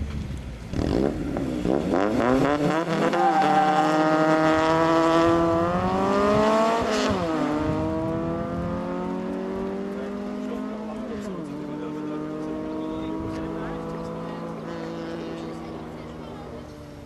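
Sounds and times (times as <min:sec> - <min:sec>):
car engines revving hard: 0:00.0 - 0:17.0.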